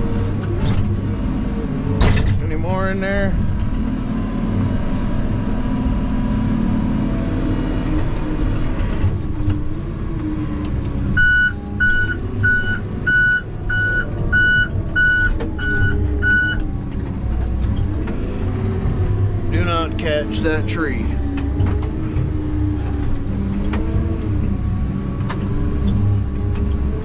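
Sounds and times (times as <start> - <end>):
heavy machine engine running: 0.0 - 27.0
reversing alarm beeping: 11.2 - 16.6.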